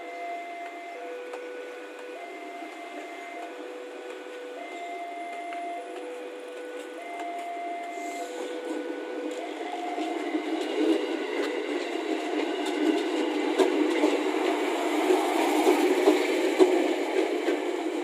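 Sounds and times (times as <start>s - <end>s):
train wheels rumbling on rails: 0.0s - 18.0s
two-tone level-crossing alarm: 0.0s - 18.0s
wheels clicking over rail joints: 5.3s - 18.0s.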